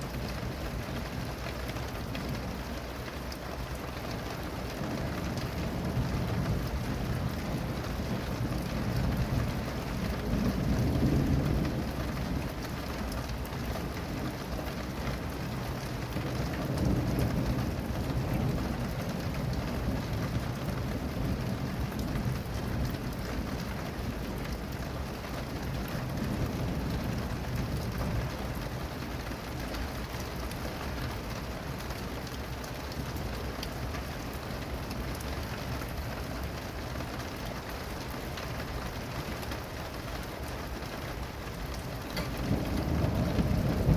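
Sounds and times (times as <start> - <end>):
steady rain falling: 0.0 - 43.9
thunder rolling: 41.6 - 43.9.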